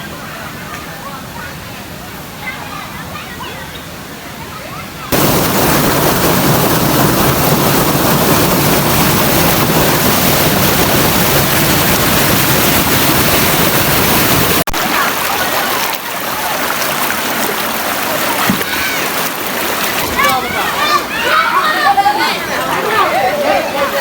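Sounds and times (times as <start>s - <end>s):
thin water sound: 5.1s - 24.0s
waterfall rushing: 5.1s - 24.0s.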